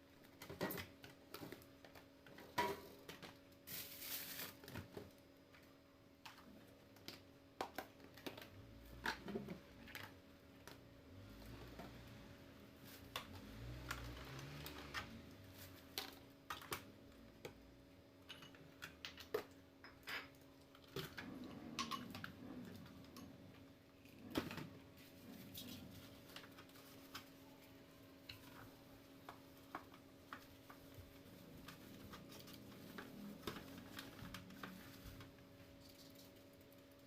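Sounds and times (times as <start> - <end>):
household items clicking and knocking: 0.2 - 3.6, 4.4 - 10.8, 12.8 - 27.5.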